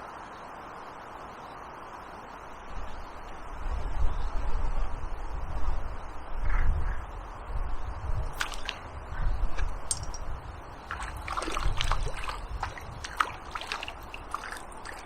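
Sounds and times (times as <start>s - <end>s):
water splashing and sloshing: 8.2s - 15.0s.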